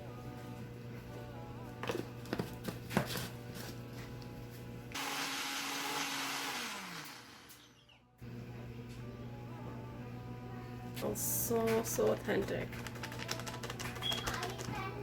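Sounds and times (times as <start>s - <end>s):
background music: 0.0s - 4.5s, 8.5s - 15.0s
blender motor whirring: 4.9s - 7.9s.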